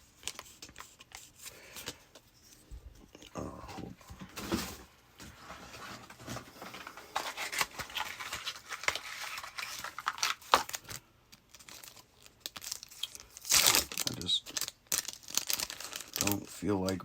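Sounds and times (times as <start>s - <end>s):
packaging crackling and rustling: 4.4s - 17.0s
packaging tearing: 6.7s - 17.0s.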